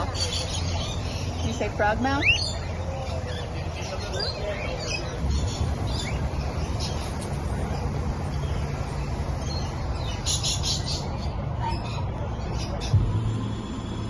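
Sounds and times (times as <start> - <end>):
birds chirping: 0.0 - 14.0
steady low rumble: 5.0 - 14.0.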